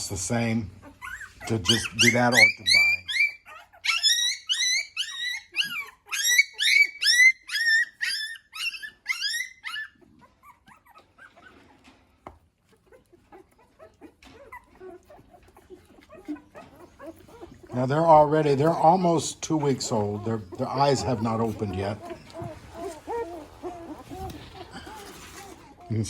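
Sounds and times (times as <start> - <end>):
puppies squealing: 0.0 - 26.0
soft rustling: 10.2 - 26.0.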